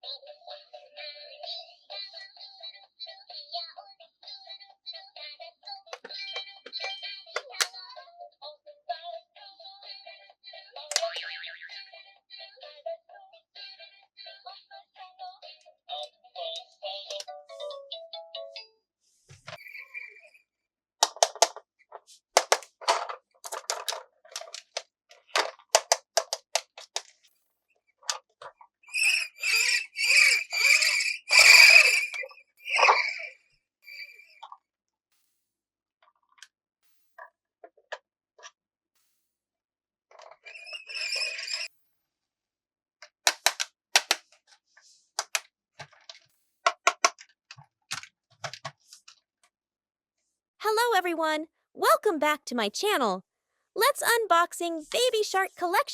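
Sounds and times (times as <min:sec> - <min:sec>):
plastic toy pieces clicking: 0:10.9 - 0:11.2, 0:21.0 - 0:21.6, 0:22.4 - 0:27.2, 0:43.3 - 0:44.2, 0:45.2 - 0:47.3
toy squeaking: 0:28.9 - 0:34.4, 0:40.5 - 0:41.7.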